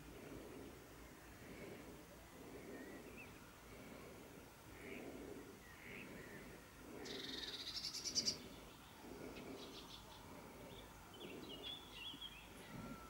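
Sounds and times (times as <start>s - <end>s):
songbird rapid trill: 4.7s - 13.0s
scattered bird chirps: 7.0s - 8.4s.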